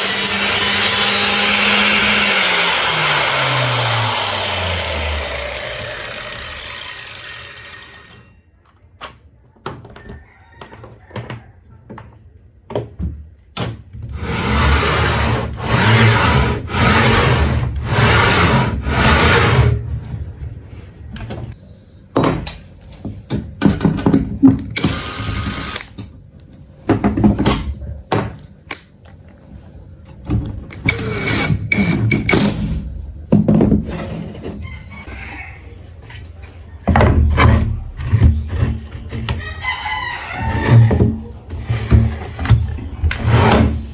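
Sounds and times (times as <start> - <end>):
knocks and clatter of parts: 22.2 - 28.5, 30.0 - 34.7
handheld power tool bursts: 24.7 - 26.0, 30.8 - 32.8.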